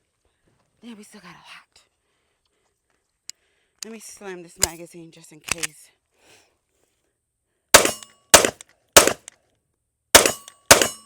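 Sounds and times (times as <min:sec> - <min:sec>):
pistol shots: 0:07.8 - 0:09.3, 0:10.2 - 0:11.0.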